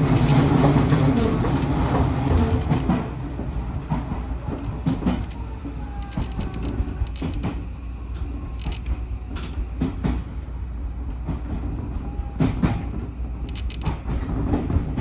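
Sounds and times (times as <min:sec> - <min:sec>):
wheels clacking over rail joints: 0:00.0 - 0:07.6
train interior rumble: 0:00.0 - 0:15.0.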